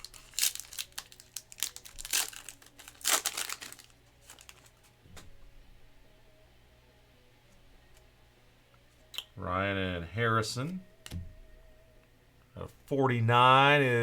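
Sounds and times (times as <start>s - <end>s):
plastic wrapper crinkling: 0.0s - 4.9s.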